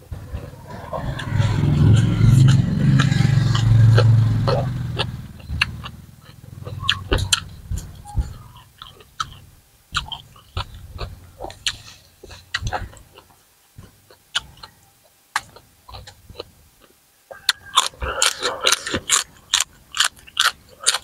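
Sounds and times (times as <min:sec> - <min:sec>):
wet crunchy chewing: 0:00.2 - 0:14.8, 0:15.4 - 0:21.0.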